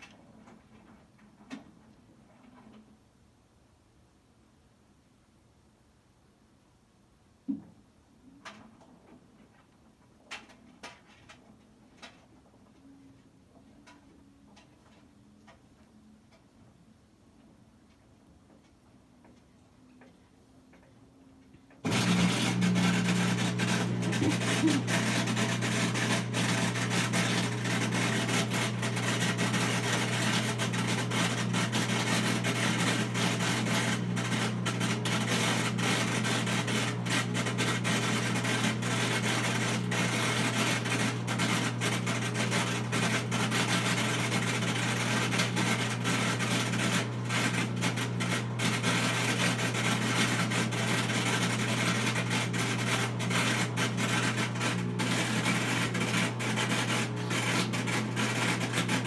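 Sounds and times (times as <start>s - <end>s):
washing machine humming and rasping: 21.8s - 59.0s.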